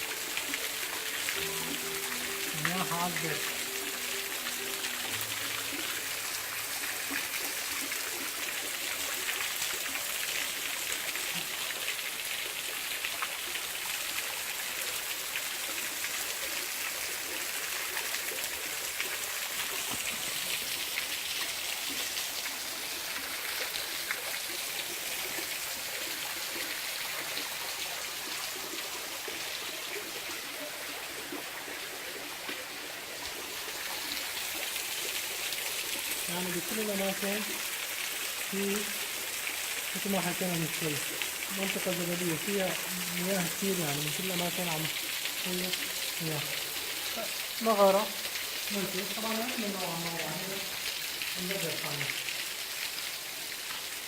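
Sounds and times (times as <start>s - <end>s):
mountain water rushing: 0.0s - 54.0s.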